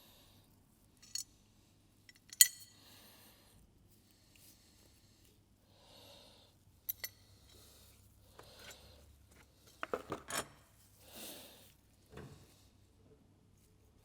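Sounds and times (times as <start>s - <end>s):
metal parts clinking on workbench: 1.0s - 1.3s, 2.1s - 2.8s, 6.9s - 7.2s
soft handling noises: 6.9s - 14.0s.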